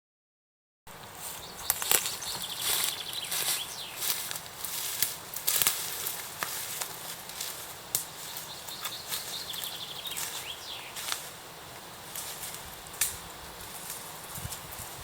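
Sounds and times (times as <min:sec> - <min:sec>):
small birds calling: 0:01.2 - 0:04.8, 0:07.9 - 0:11.4
sharp snaps and rustles: 0:01.6 - 0:11.3, 0:12.1 - 0:14.9.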